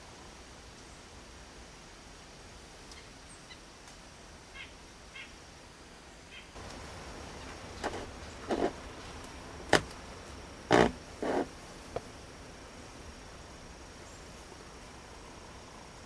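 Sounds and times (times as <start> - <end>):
rustles: 0.0 - 16.0
faint bird chirps: 4.5 - 5.4.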